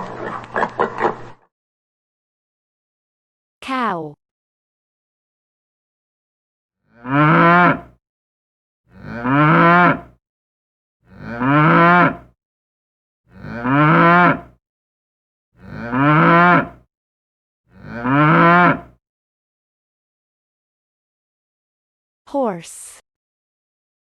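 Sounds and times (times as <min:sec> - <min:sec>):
cow mooing: 0:06.9 - 0:08.0, 0:08.9 - 0:10.2, 0:11.1 - 0:12.4, 0:13.3 - 0:14.6, 0:15.6 - 0:16.9, 0:17.7 - 0:19.0.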